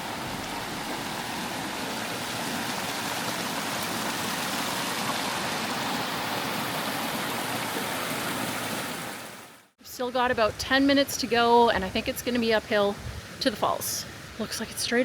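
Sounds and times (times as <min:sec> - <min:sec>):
river rushing over rocks: 0:00.0 - 0:09.4.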